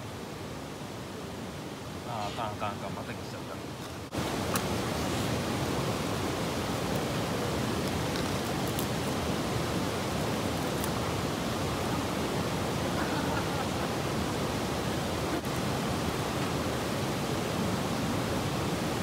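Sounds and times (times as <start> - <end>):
steady rushing background noise: 0.0 - 19.0
campfire twig crack: 3.8 - 4.8, 6.8 - 9.2, 10.4 - 11.2.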